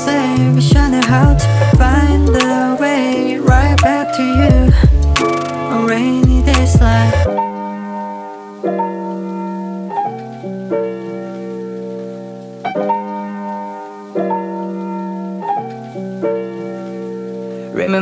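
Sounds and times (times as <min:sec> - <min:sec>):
keyboard playing held chords: 0:00.0 - 0:10.4.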